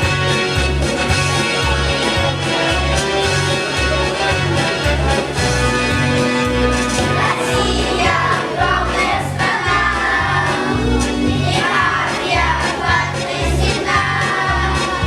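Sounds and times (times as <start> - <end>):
children's choir singing: 6.9 - 15.0.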